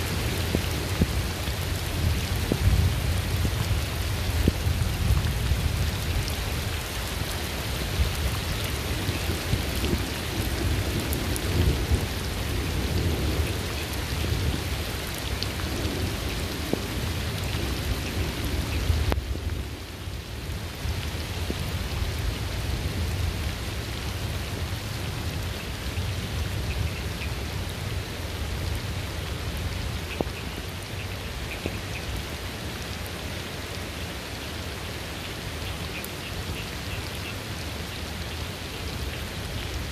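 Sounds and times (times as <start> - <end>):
heavy rain: 0.0 - 39.9
low rolling thunder: 7.8 - 23.6.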